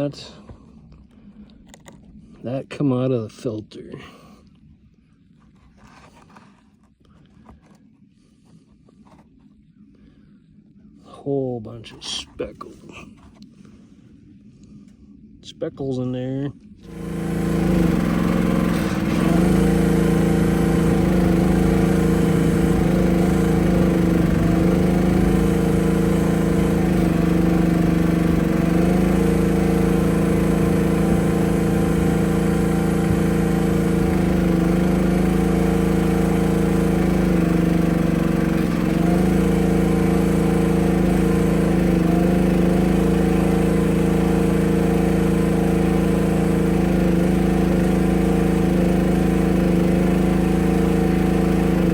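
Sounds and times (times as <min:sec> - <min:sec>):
small gasoline engine idling: 0:16.8 - 0:51.9.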